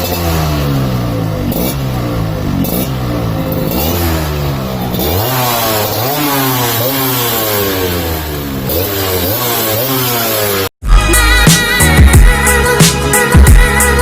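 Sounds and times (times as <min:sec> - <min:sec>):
two-stroke motorcycle revving: 0:00.0 - 0:10.7.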